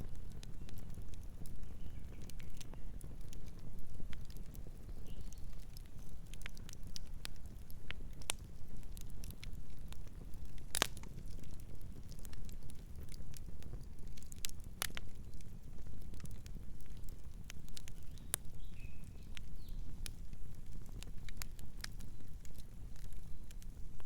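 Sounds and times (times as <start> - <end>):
campfire crackling and popping: 0.0 - 24.0.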